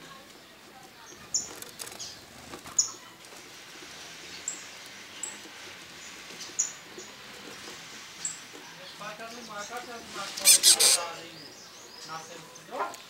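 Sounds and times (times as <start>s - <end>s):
high-pitched bird chirps: 10.4s - 11.1s.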